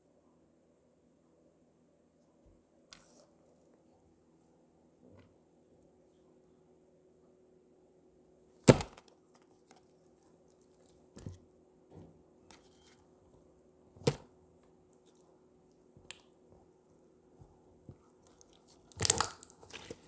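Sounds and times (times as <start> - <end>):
slime popping and slapping: 18.4 - 20.0.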